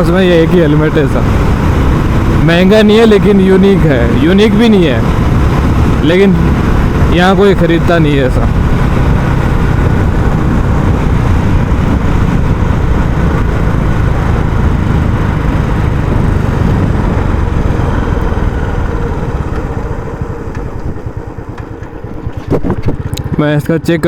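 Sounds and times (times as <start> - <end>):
motorcycle engine thumping: 8.5 - 23.6.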